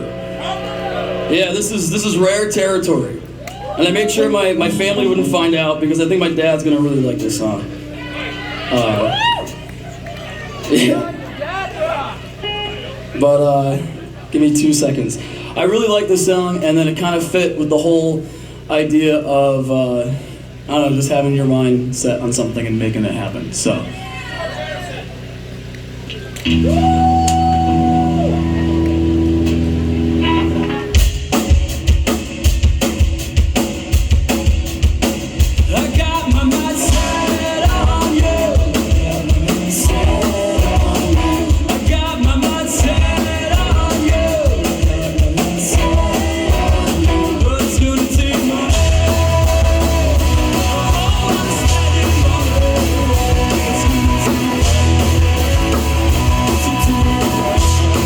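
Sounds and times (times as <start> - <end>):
rock band playing: 0.0 - 18.6, 23.9 - 58.0
drum kit beat: 26.5 - 58.0
person singing: 35.7 - 58.0.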